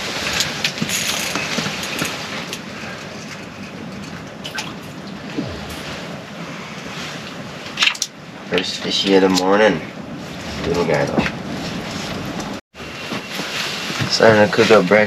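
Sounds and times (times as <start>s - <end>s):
strong wind rushing: 5.2s - 7.7s.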